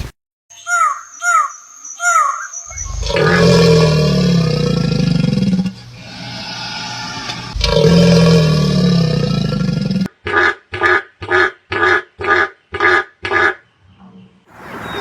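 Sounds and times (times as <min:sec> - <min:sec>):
long low animal call: 0:02.2 - 0:10.1.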